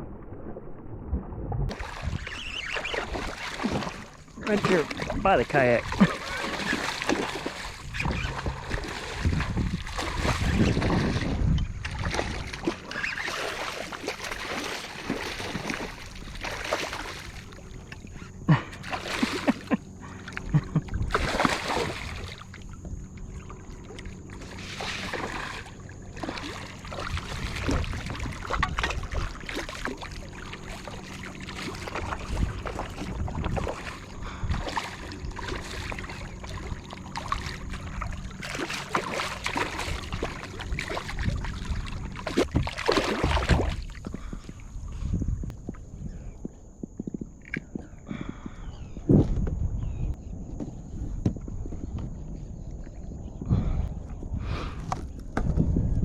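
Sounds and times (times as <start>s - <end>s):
water splashing around kayak: 0.0s - 45.9s.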